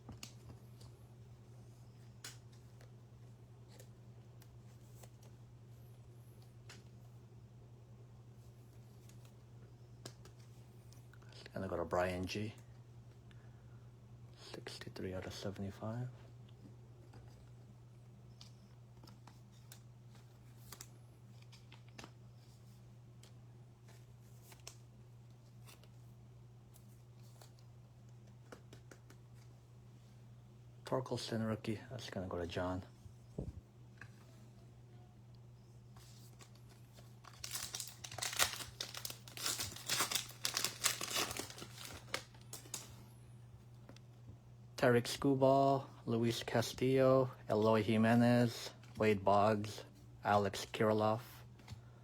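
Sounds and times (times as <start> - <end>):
steady low hum: 0.0 - 52.0
foil wrapper crinkling and tearing: 36.4 - 42.9
trading cards clicking: 37.2 - 42.9.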